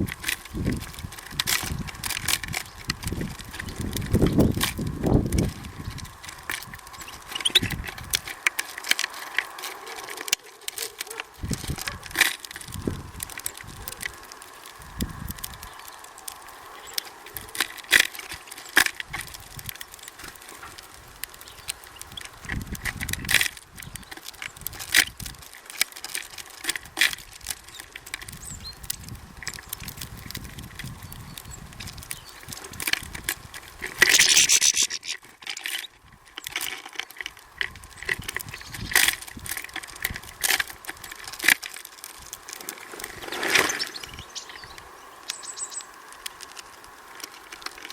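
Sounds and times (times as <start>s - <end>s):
birds pecking and hopping on feeder: 0.0s - 47.9s.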